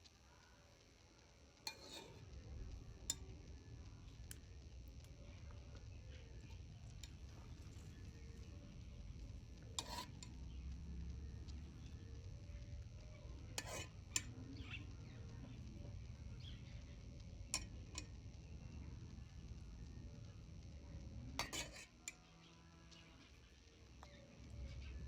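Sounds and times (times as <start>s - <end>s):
low steady hum: 0.0s - 25.0s
metal spoon clinking on a dish: 1.6s - 2.2s, 9.8s - 10.4s, 13.6s - 14.8s, 17.5s - 18.1s, 21.4s - 22.2s
spoon stirring and scraping: 1.6s - 3.3s, 6.1s - 10.6s, 13.1s - 15.6s, 16.5s - 18.2s, 21.4s - 22.3s.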